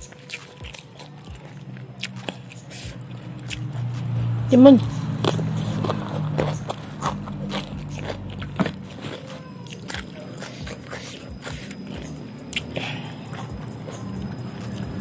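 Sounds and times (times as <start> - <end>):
cucumber crunching while chewing: 0.0 - 15.0
wet mouth clicks: 9.7 - 14.8.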